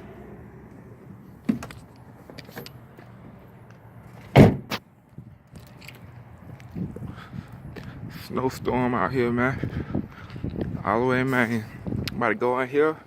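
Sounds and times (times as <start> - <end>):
low engine hum: 0.0 - 4.3
vehicle door slamming: 1.4 - 1.8, 4.2 - 4.8.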